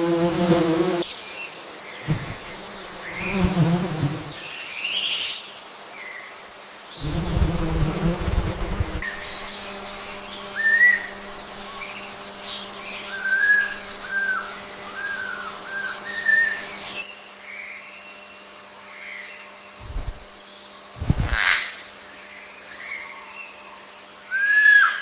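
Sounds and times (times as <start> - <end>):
faint steady hum: 5.8 - 24.5
low thumps: 7.0 - 9.1.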